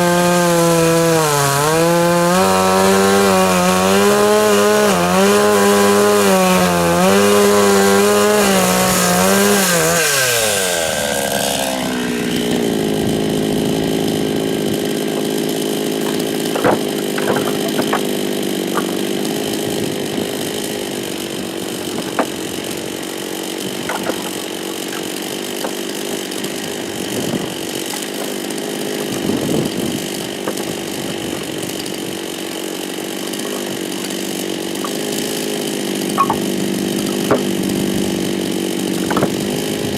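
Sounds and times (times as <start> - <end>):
chainsaw cutting logs: 0.0 - 39.9
sharp knocks of wood: 16.0 - 19.0, 21.9 - 22.4, 23.7 - 26.3, 34.8 - 35.1, 36.1 - 37.6, 39.0 - 39.6.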